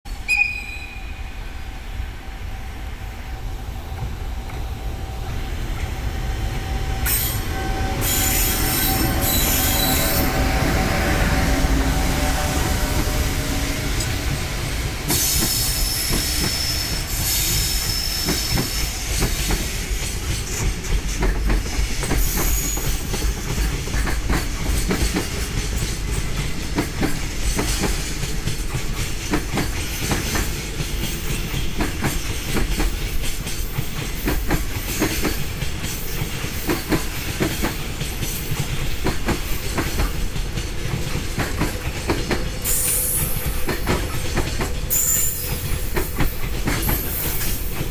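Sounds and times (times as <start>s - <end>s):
low train rumble: 0.1s - 47.9s
high wheel squeal: 7.0s - 10.5s, 15.2s - 19.0s
train wheels clacking over rail joints: 14.0s - 47.9s.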